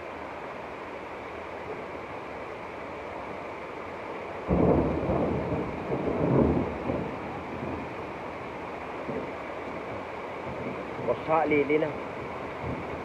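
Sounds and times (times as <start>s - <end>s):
rushing rain: 0.0s - 13.0s
low rumble of thunder: 4.4s - 13.0s.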